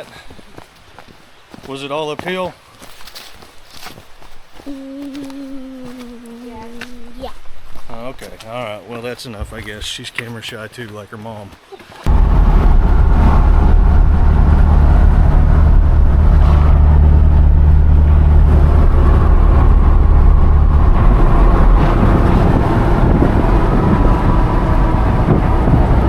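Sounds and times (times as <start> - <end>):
car road and engine noise: 12.1 - 26.0.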